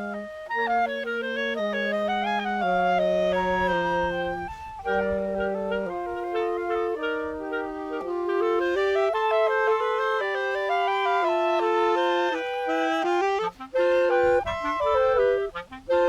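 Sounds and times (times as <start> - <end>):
woodwind trio playing: 0.0 - 16.0
wind rumble on microphone: 2.0 - 9.2, 12.9 - 16.0.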